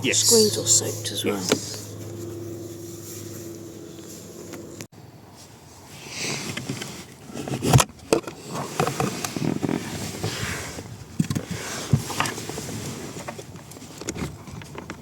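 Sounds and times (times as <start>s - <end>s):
rustling: 1.5s - 7.8s.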